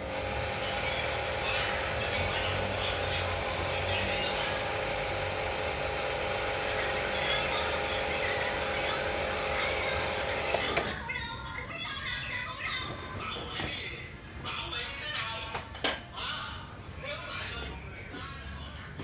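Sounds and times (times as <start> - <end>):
machine motor humming: 0.0 - 11.0.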